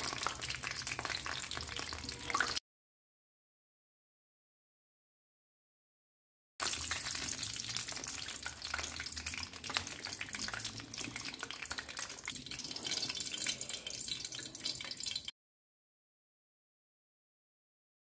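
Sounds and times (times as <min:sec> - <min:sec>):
dumplings sizzling in hot oil: 0:00.0 - 0:02.6, 0:06.6 - 0:15.3.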